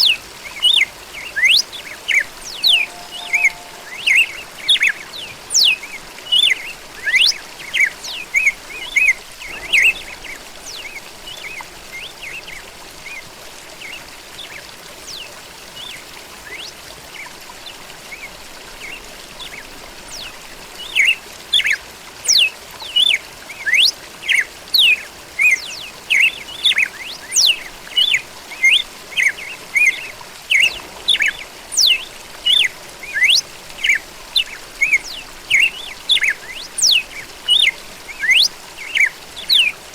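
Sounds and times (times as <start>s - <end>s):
faint steady hiss: 0.0s - 39.9s
bird singing chirping notes: 2.4s - 5.0s.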